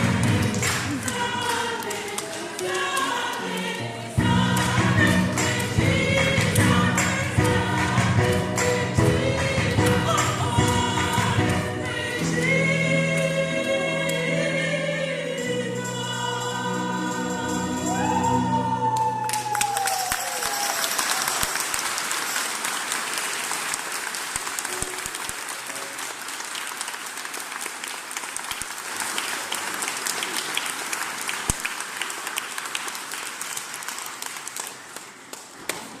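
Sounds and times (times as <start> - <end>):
audience applauding: 0.0 - 11.6, 18.8 - 36.0
choir singing: 0.0 - 19.2.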